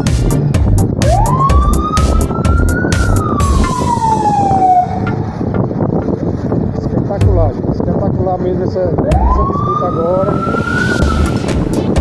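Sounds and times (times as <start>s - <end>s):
low rumble: 0.0s - 12.0s
siren wailing: 1.0s - 5.5s, 9.1s - 11.8s.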